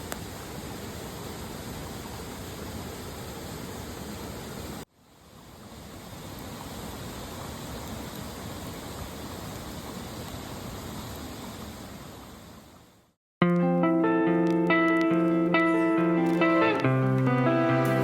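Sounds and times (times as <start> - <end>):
mountain stream rushing: 0.0 - 12.6, 14.4 - 18.0
guitar music: 13.4 - 18.0.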